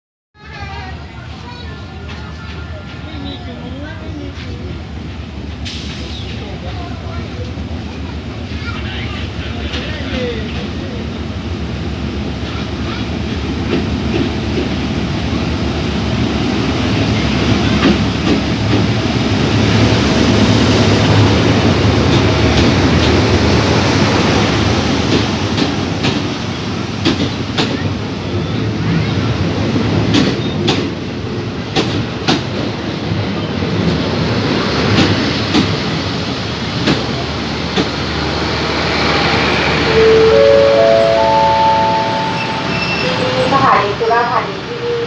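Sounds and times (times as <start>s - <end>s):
diesel locomotive engine rumbling: 0.4s - 45.0s
train wheels clicking over rail joints: 20.7s - 28.0s, 29.7s - 39.9s.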